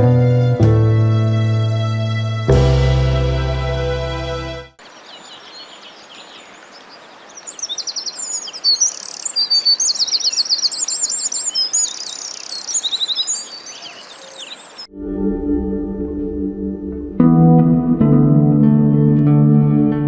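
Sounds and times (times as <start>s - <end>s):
songbirds trilling and chirping: 4.8s - 14.9s
steady outdoor hiss: 4.8s - 14.9s.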